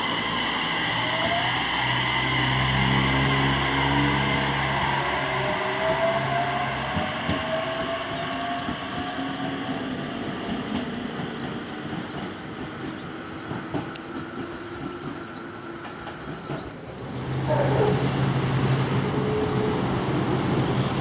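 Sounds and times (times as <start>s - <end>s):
electric train motor whine: 0.0s - 12.7s, 17.0s - 21.0s.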